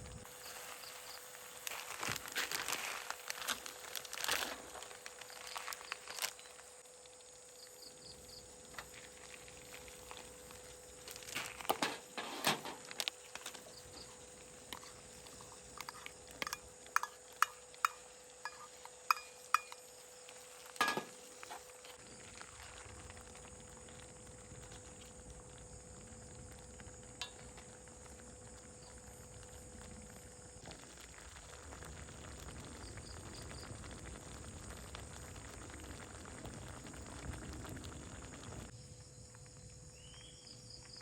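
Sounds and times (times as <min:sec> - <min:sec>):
objects clinking and rustling: 0:20.8 - 0:21.2.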